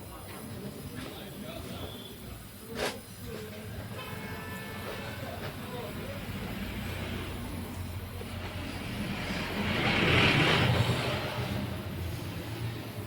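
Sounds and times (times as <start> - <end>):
motor vehicle passing by: 6.2 - 13.0.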